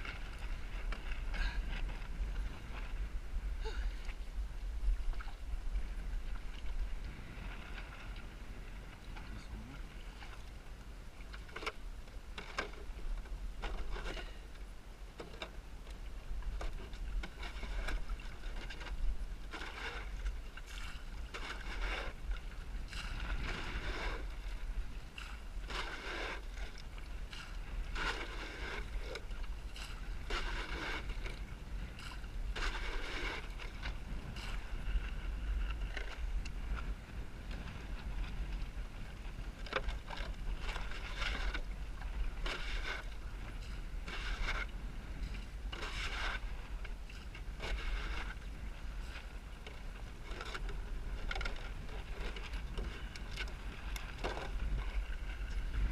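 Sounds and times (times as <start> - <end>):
wind rumble on microphone: 0.0 - 55.9
water slapping against boat hull: 15.2 - 55.9.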